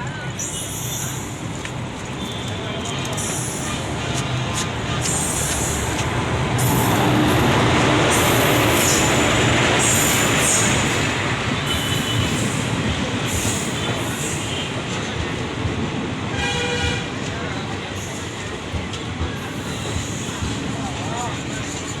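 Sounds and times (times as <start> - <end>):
train rumbling on the track: 0.0 - 22.0.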